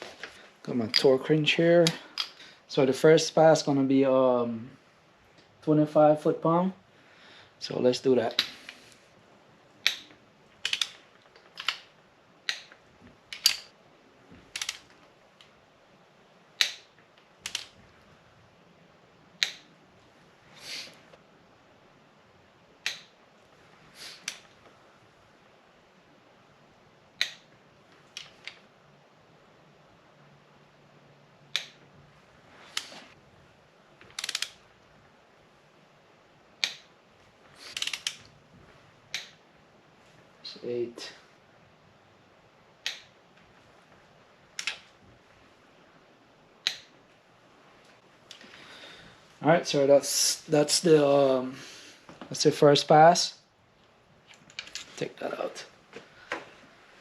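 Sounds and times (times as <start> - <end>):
torque wrench clicking: 9.8 - 11.0, 14.5 - 14.8, 16.6 - 17.7, 34.2 - 34.6, 37.7 - 38.2
sharp torque wrench click: 14.6 - 14.8, 34.2 - 34.6, 37.7 - 38.2
torque wrench ratchet clicks: 34.2 - 34.5.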